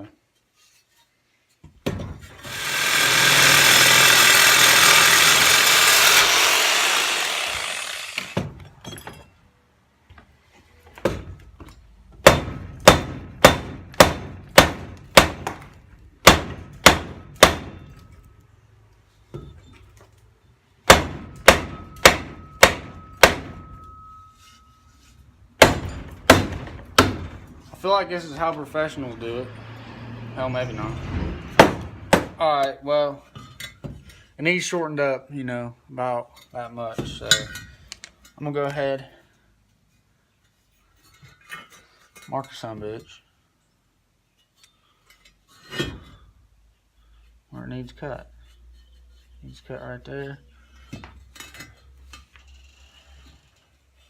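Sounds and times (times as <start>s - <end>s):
power tool running: 2.3s - 8.4s
sharp knocks on exhaust pipe: 12.2s - 17.8s, 20.9s - 23.6s, 25.6s - 27.4s, 31.6s - 32.4s.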